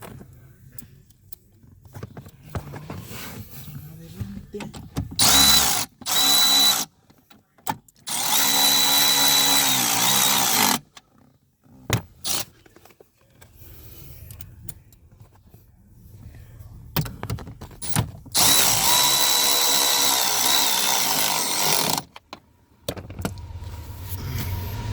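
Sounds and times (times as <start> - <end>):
cordless drill motor winding down: 5.2 - 6.8, 8.1 - 10.8, 18.4 - 22.0.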